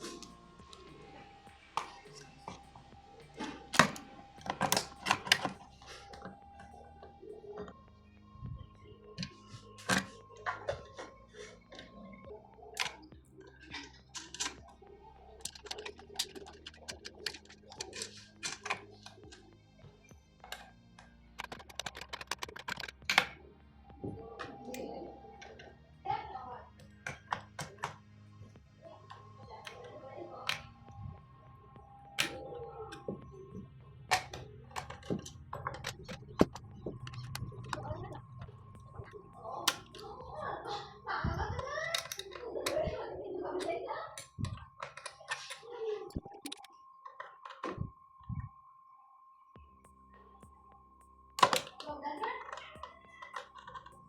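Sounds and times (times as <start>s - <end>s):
faint low hum: 0.0s - 54.0s
hard objects clicking and knocking: 15.4s - 19.5s, 20.4s - 23.4s, 32.0s - 43.0s, 51.4s - 54.0s.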